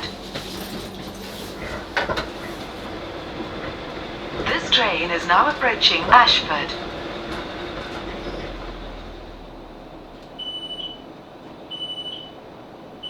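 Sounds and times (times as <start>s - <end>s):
electric train rumbling: 0.0s - 13.0s
door warning beeps: 10.4s - 11.1s, 11.7s - 12.4s.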